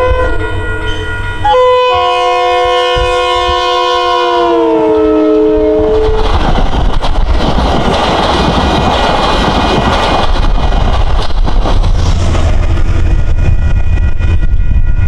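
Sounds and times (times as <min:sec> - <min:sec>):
train horn: 0:00.0 - 0:06.3
train coaches rumbling past: 0:00.0 - 0:15.0.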